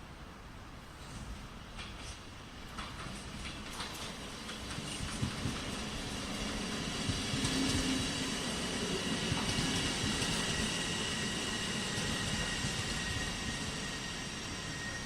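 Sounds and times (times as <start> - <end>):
train wheels rumbling on rails: 0.8 - 15.0
faint high whine: 8.8 - 15.0.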